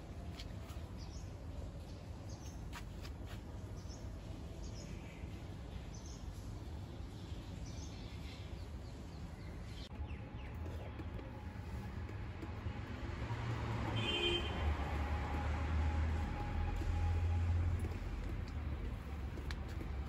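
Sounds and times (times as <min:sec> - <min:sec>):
small birds chirping: 0:00.6 - 0:13.4.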